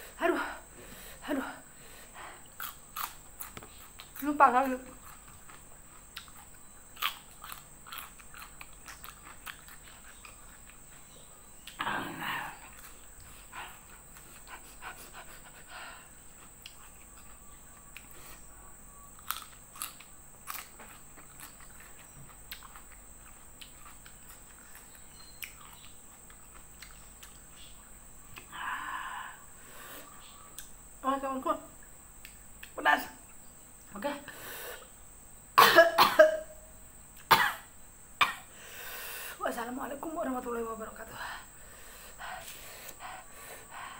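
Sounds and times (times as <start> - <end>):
woman chewing: 2.6 - 4.3, 4.9 - 11.8, 19.2 - 27.5.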